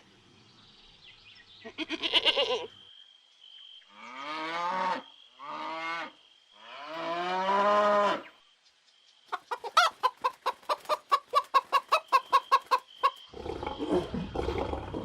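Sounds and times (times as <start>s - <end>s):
hen clucking rapidly: 9.3s - 13.3s.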